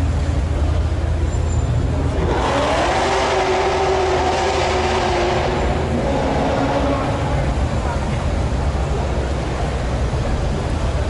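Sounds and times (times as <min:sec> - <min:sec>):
car engine running: 0:00.0 - 0:11.0
steady low rumble: 0:03.8 - 0:11.0.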